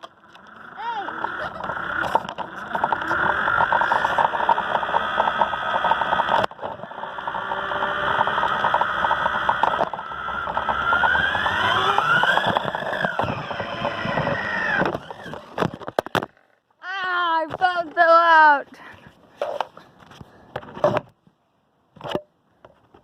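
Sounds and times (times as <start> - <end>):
toy car electric motor whining: 0.0 - 15.8
wheels rattling on concrete: 0.0 - 16.6.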